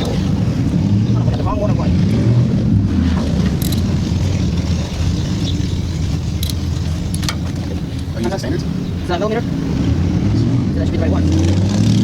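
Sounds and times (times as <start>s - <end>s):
steady low rumble: 0.0s - 11.5s
hand tools clicking: 3.6s - 4.1s, 6.4s - 8.1s.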